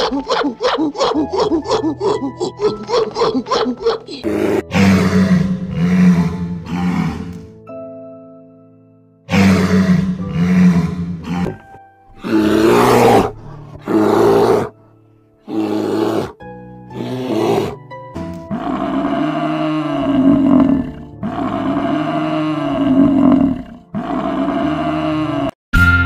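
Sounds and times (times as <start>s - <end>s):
wild animals roaring: 3.4s - 7.4s, 9.3s - 14.7s, 15.5s - 17.8s, 18.4s - 25.6s.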